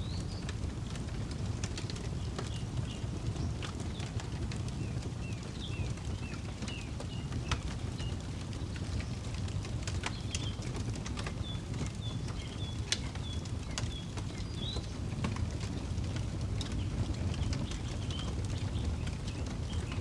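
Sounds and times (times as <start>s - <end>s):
campfire crackling: 0.0s - 20.0s
birds chirping: 4.8s - 9.2s, 10.0s - 15.7s.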